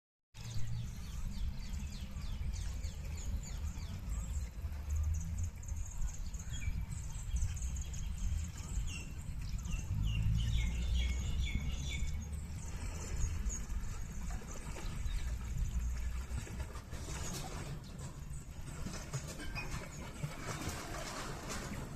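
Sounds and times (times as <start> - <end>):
small birds chirping: 0.4 - 16.5.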